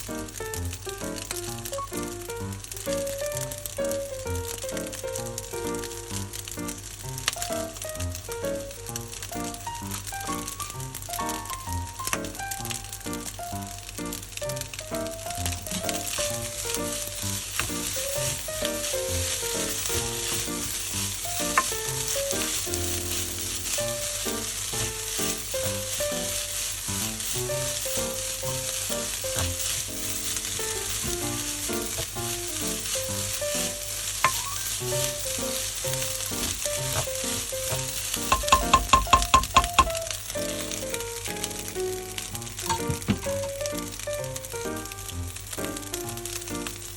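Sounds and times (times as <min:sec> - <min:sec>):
background music: 0:00.0 - 0:46.9
rice sizzling in a frying pan: 0:00.0 - 0:46.9
utensil clinking on pan: 0:15.6 - 0:41.0, 0:42.6 - 0:43.6.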